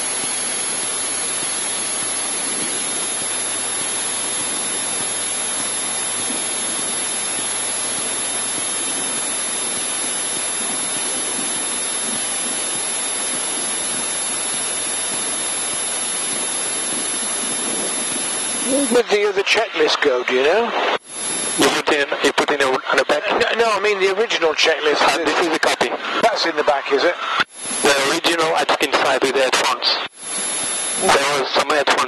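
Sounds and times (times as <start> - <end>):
aircraft engine hiss through intercom: 17.4 - 20.1, 21.3 - 24.2, 24.8 - 30.0, 30.9 - 32.0.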